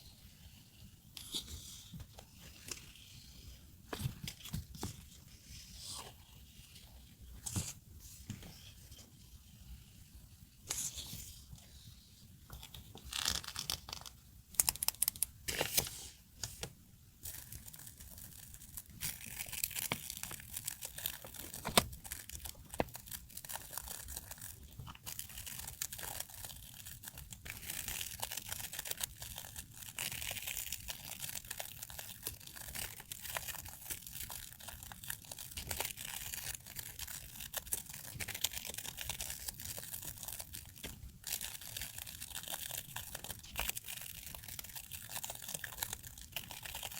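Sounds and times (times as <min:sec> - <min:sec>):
packaging crinkling and tearing: 0:13.0 - 0:16.0, 0:17.2 - 0:46.9
packaging rustling: 0:17.2 - 0:46.9.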